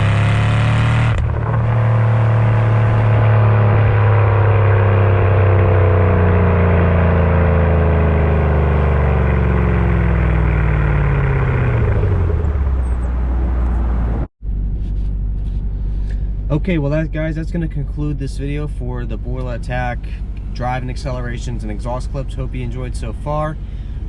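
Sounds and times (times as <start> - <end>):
car engine revs falling: 0.0 - 14.3.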